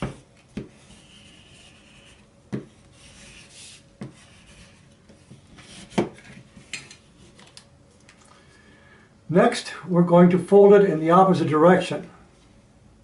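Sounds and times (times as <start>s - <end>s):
paper rubbing on table: 0.0s - 6.4s.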